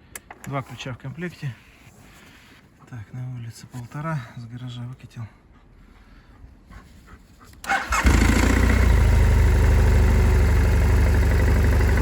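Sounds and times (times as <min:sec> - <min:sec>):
electric starter cranking: 0:07.7 - 0:12.0
motorcycle engine idling: 0:07.9 - 0:12.0.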